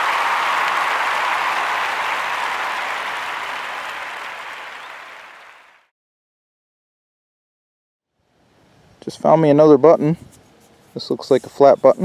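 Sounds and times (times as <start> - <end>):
crowd applause: 0.0 - 5.9.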